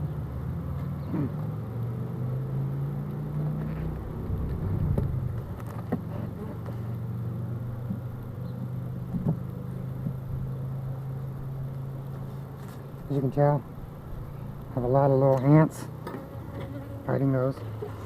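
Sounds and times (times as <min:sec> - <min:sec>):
steady low hum: 0:01.0 - 0:15.2.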